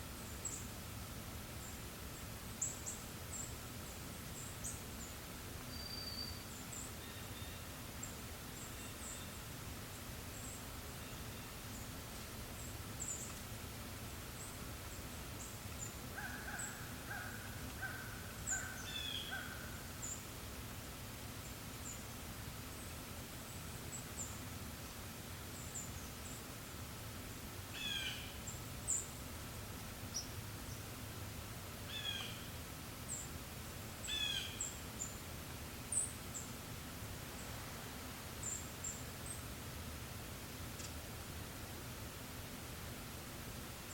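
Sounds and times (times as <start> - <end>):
steady breeze: 0.0 - 43.9
forest birds calling: 2.6 - 12.0, 14.4 - 20.3, 27.7 - 29.2, 30.0 - 30.9, 31.9 - 33.3, 34.0 - 35.2, 35.9 - 36.6, 38.3 - 39.5.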